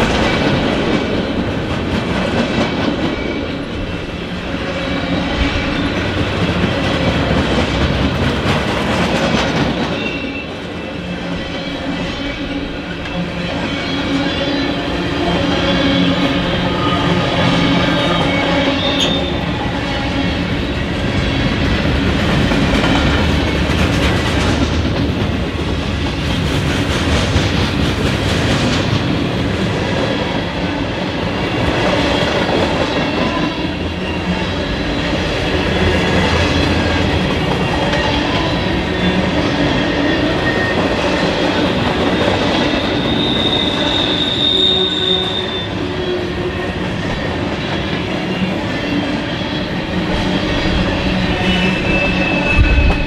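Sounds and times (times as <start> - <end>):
train wheels rumbling on rails: 0.0 - 53.0
wheel squeal: 9.9 - 12.4, 15.5 - 20.3, 42.2 - 46.3, 48.3 - 53.0.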